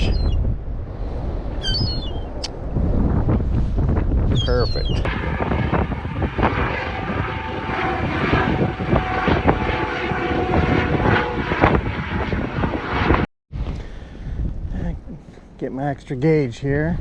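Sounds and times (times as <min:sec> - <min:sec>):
wind buffeting microphone: 0:00.0 - 0:15.3
faint engine-like drone: 0:04.8 - 0:13.3.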